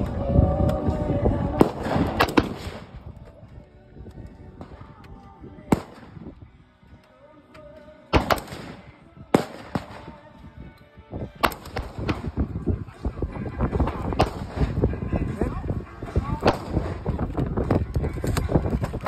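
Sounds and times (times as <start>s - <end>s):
gunshots: 1.6s - 3.0s, 5.7s - 6.2s, 8.1s - 10.2s, 11.4s - 12.4s, 14.1s - 14.8s, 16.4s - 17.0s.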